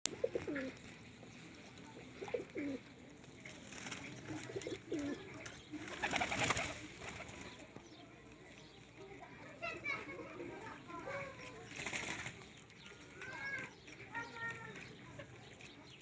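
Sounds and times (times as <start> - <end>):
pigeon cooing: 0.1 - 0.8, 2.0 - 2.9, 4.1 - 6.9.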